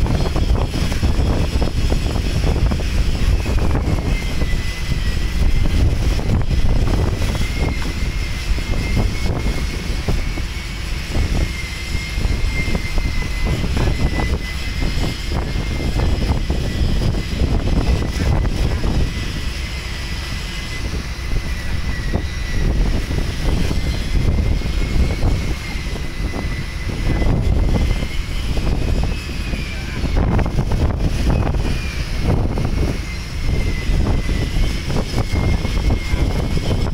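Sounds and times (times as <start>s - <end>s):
wind buffeting microphone: 0.0s - 36.9s
thin high whistle: 3.3s - 6.4s, 7.2s - 30.5s.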